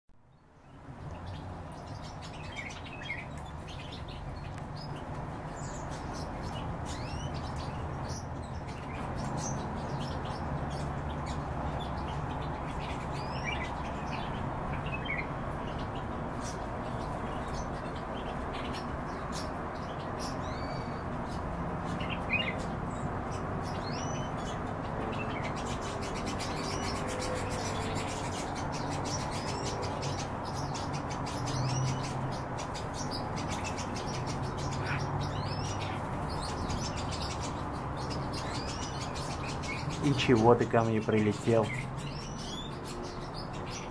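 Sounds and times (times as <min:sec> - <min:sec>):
birds chirping: 0:00.2 - 0:43.9.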